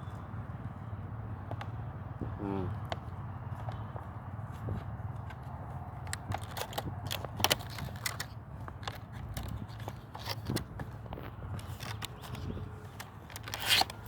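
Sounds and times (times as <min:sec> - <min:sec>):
hands handling clicks and crackles: 0:04.8 - 0:14.0.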